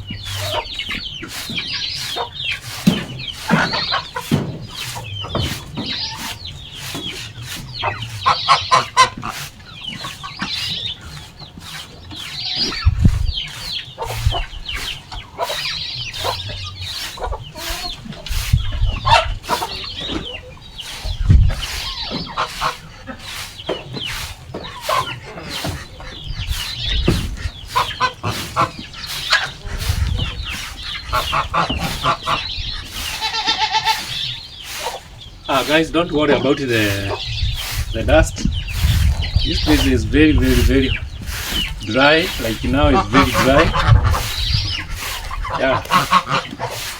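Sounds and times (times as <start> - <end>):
chickens clucking: 0.0 - 46.9
scratchy scraping strokes: 0.0 - 46.9
low thumps: 23.8 - 33.2, 35.5 - 46.0.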